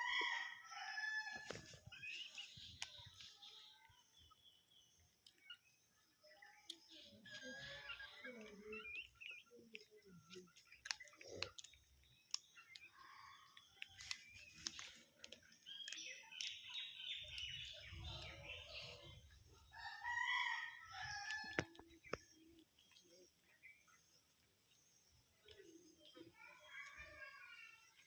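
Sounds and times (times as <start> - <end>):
chickens calling: 0.0 - 4.4, 6.7 - 28.0.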